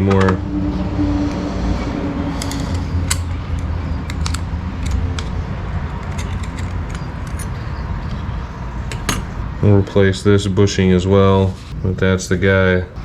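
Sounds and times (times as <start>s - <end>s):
steady low hum: 0.0s - 13.0s
metal parts clinking: 2.4s - 9.5s.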